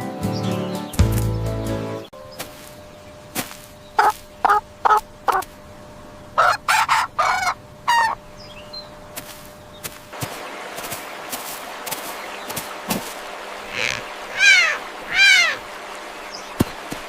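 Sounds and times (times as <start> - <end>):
rooster clucking: 4.0 - 5.5, 6.4 - 8.2, 13.6 - 15.6
rooster crowing: 6.4 - 8.2.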